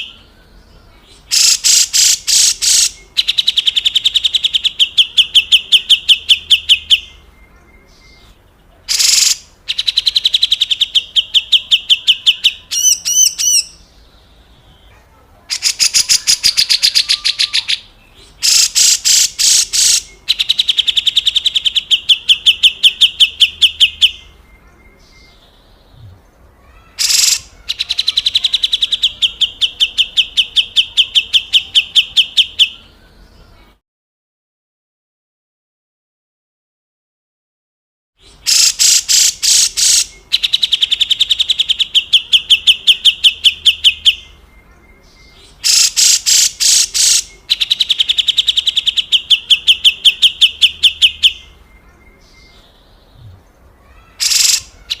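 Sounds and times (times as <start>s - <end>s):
sharp bird calls: 0.0s - 33.8s, 38.2s - 55.0s
bird harsh rattling call: 1.3s - 3.0s, 8.9s - 9.5s, 18.4s - 20.1s, 26.9s - 28.2s, 38.4s - 41.0s, 45.6s - 48.9s, 53.9s - 55.0s.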